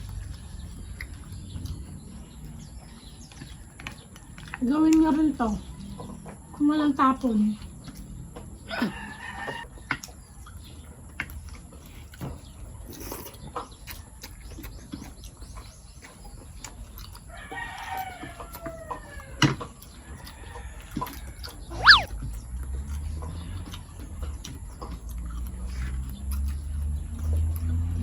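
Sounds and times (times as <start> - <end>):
rooster crowing: 8.7 - 9.7, 21.8 - 22.1.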